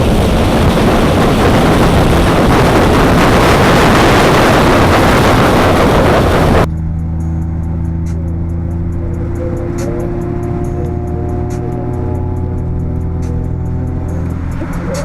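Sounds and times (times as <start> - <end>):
car accelerating past: 0.7 - 15.0.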